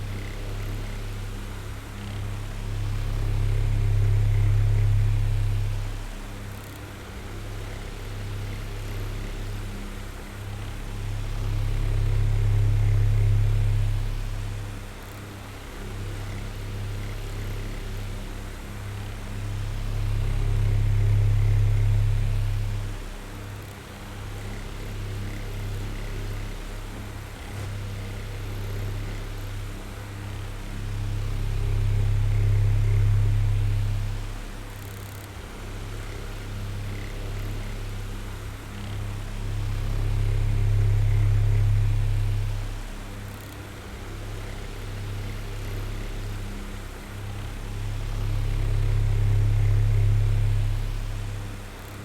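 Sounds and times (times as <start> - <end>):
electric fan whirring: 19.2 - 52.0.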